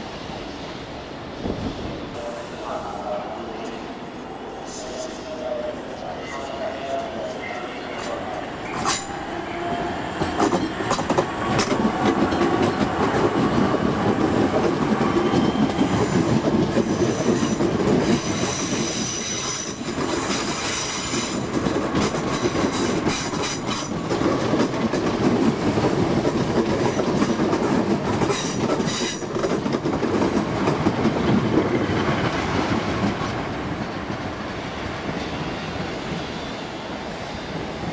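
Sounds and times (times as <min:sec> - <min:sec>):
train wheels clattering over rail joints: 0:10.2 - 0:33.1.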